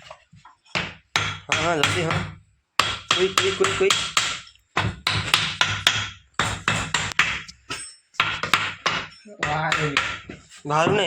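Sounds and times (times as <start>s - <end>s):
rapid hammer blows on metal: 1.2s - 7.5s.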